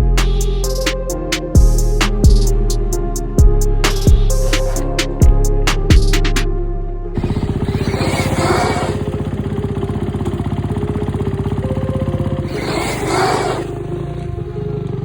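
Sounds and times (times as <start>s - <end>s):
dirt bike engine running: 7.2s - 15.0s.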